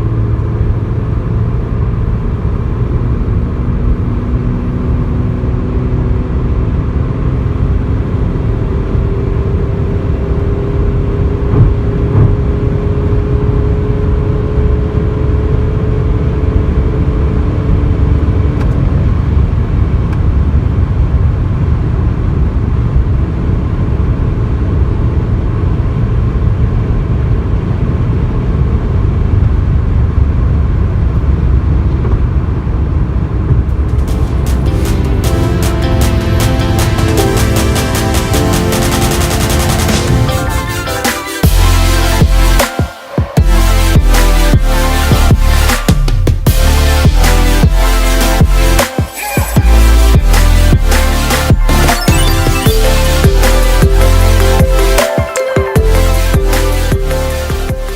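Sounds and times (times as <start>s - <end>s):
diesel car engine pulling hard: 0.0s - 40.6s
road and wind rumble: 0.0s - 48.9s.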